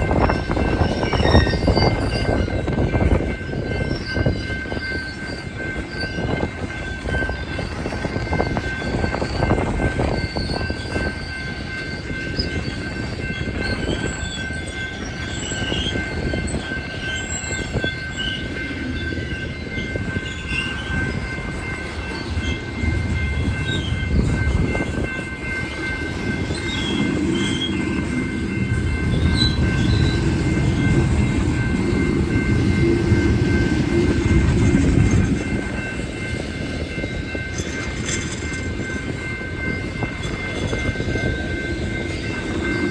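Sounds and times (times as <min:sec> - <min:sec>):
high-pitched wheel squeals: 0:00.0 - 0:31.0
train wheels rumbling on rail: 0:00.0 - 0:42.9.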